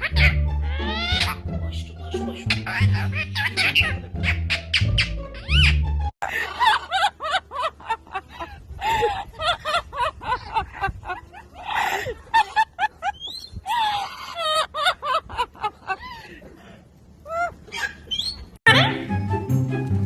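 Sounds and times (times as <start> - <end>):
parrot chattering and squawking: 0.0 - 5.8.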